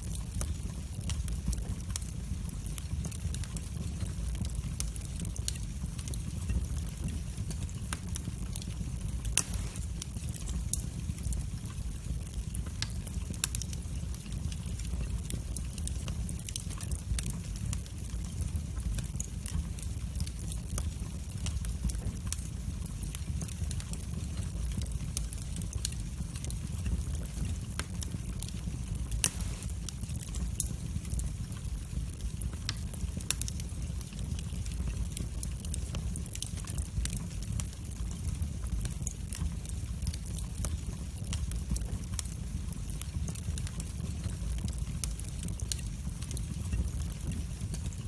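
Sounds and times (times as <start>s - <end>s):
low rumble of flames: 0.0s - 48.0s
wood fire crackling and popping: 0.0s - 48.0s.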